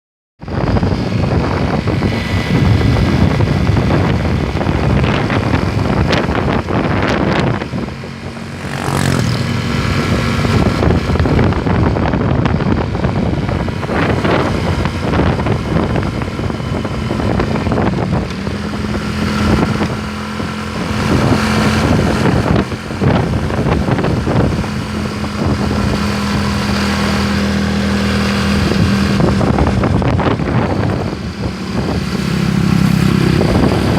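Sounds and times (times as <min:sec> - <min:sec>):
road and wind noise: 0:00.4 - 0:33.9
vehicle engine running: 0:00.4 - 0:33.9
vehicles passing: 0:00.4 - 0:33.9.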